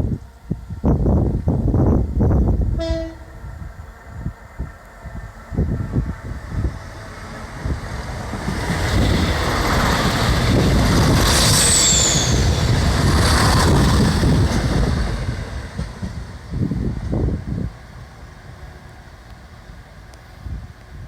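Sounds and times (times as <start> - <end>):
wind buffeting microphone: 0.0 - 18.8, 19.6 - 21.0
train rumbling past: 0.0 - 21.0
high squeal falling in pitch: 11.5 - 12.7.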